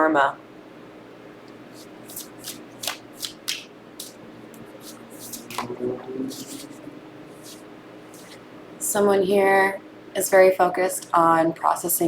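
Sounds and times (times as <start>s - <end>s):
cards flicking and sliding: 1.8s - 4.2s, 4.8s - 5.7s, 6.3s - 6.8s.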